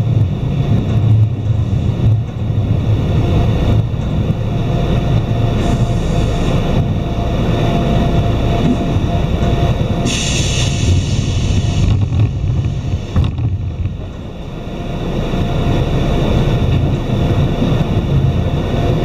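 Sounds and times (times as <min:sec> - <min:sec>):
train equipment rumble and hum: 0:00.0 - 0:19.0
hiss: 0:10.0 - 0:13.2.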